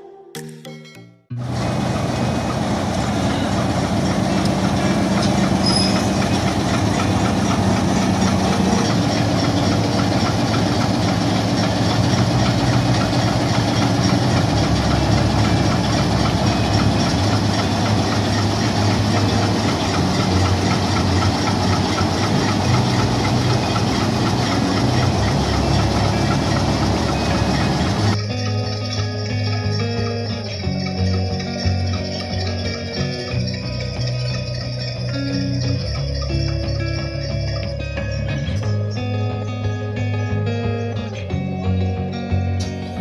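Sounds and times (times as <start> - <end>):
locomotive engine drone: 1.3 - 43.0.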